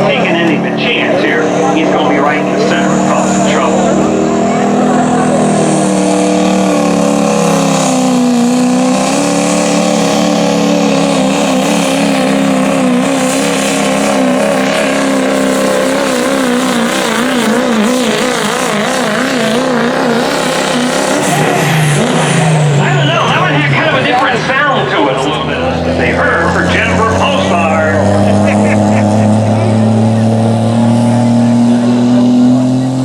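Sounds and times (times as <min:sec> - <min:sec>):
diesel truck engine at full throttle: 0:00.0 - 0:33.0.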